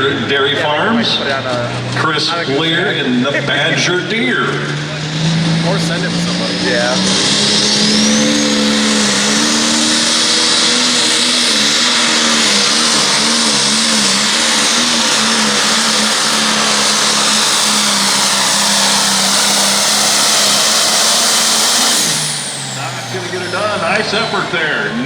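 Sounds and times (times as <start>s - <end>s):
tractor engine at full throttle: 0.0s - 25.0s
loud high hiss: 6.8s - 24.7s.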